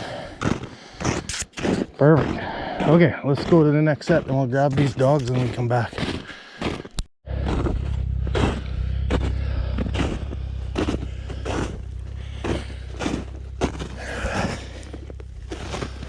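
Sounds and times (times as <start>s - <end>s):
snowmobile engine running: 2.2s - 5.9s, 7.3s - 16.0s.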